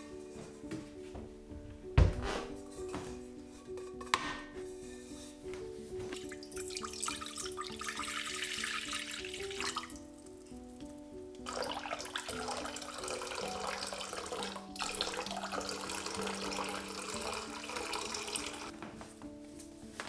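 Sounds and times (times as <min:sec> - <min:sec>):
soft background music: 0:00.0 - 0:20.0
water running from a tap into a sink: 0:06.2 - 0:10.1, 0:11.4 - 0:18.7.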